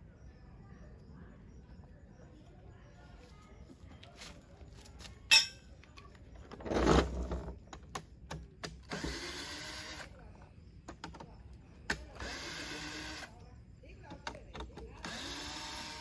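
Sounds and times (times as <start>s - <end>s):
small power tool motor: 8.9s - 10.1s, 12.2s - 13.4s, 15.0s - 16.0s.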